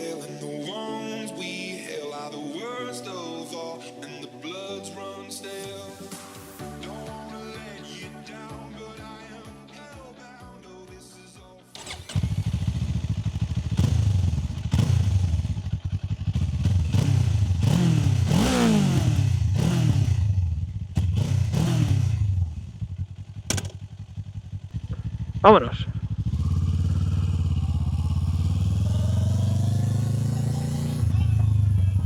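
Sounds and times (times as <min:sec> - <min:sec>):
engine idling with throttle blips: 0:11.8 - 0:32.0
motorcycle engine starting: 0:11.8 - 0:32.0.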